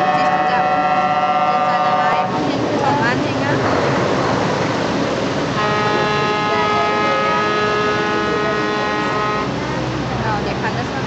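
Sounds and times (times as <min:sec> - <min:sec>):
horn long blast: 0:00.0 - 0:02.4, 0:05.5 - 0:09.6
steady background rush: 0:01.7 - 0:11.0.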